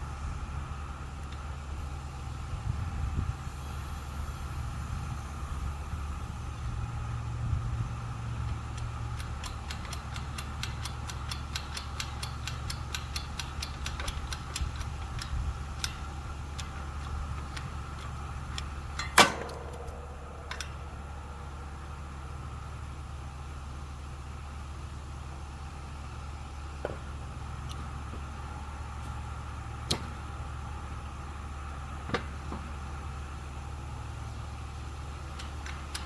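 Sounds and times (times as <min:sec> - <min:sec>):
steady low hum: 0:00.0 - 0:36.0
wood straining ticks: 0:08.4 - 0:21.0.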